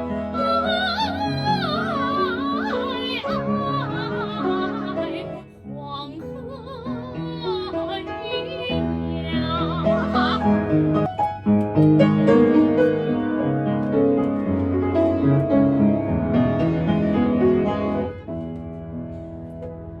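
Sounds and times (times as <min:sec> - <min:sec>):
piano chords: 0:00.0 - 0:20.0.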